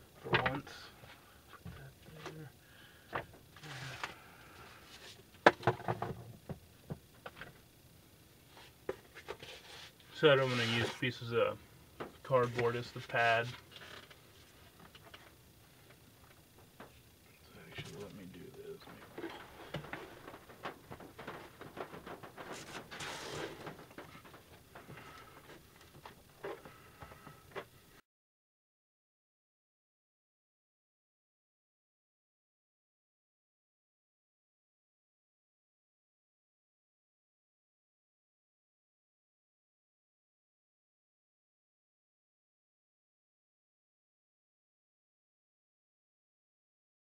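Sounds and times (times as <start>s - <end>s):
objects knocking and clicking: 5.4s - 7.6s
cardboard rustling scrape: 8.6s - 11.1s, 21.0s - 24.2s.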